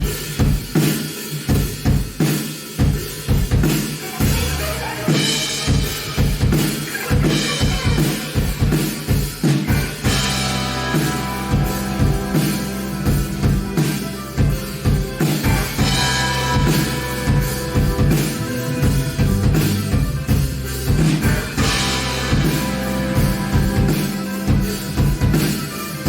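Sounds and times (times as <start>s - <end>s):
drum kit beat: 0.0s - 26.0s
bass guitar: 4.2s - 26.0s
electric guitar: 4.3s - 26.0s.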